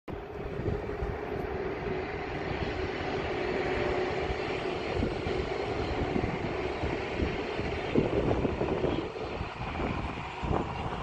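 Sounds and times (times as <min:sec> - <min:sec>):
electric train rumble and hum: 0:00.1 - 0:11.0.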